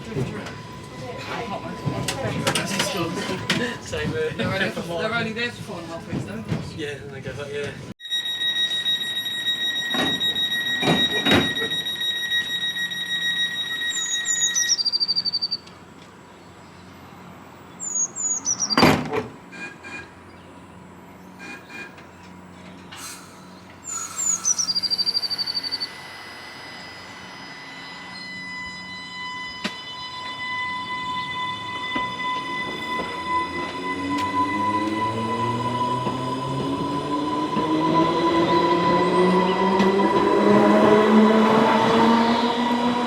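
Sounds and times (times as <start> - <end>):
steady high electronic tone: 8.0 - 14.7, 23.9 - 43.0
steady electric whine: 25.4 - 30.7.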